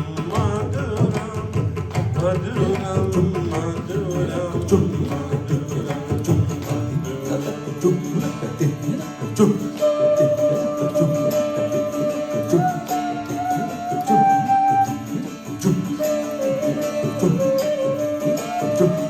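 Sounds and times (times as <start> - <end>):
hand drum strokes: 0.0 - 19.0
flute long held notes: 9.8 - 15.2, 16.0 - 19.0.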